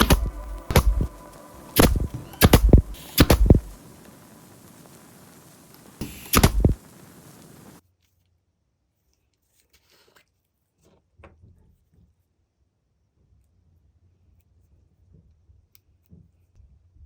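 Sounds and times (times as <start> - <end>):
sharp knocks: 0.0 - 3.8, 6.0 - 6.9.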